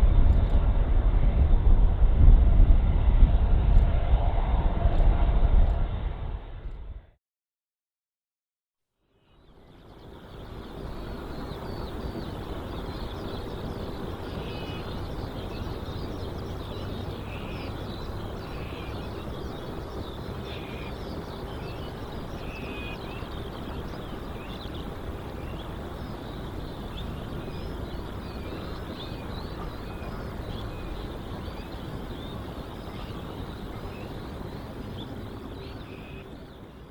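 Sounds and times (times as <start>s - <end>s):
small birds chirping: 9.2s - 36.9s.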